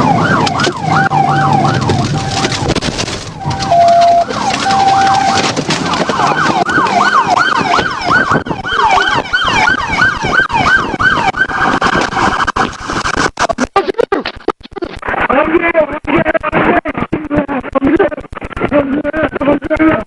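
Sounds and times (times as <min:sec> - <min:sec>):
siren buzzing tone: 0:00.0 - 0:02.7, 0:03.3 - 0:13.1
police siren wailing and yelping: 0:00.0 - 0:12.6.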